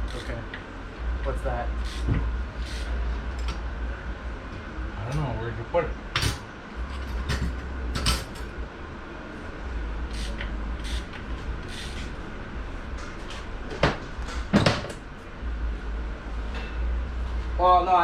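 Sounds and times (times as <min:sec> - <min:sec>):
low steady hum: 0:00.0 - 0:18.0
knocks and clinks of parts: 0:06.2 - 0:08.5.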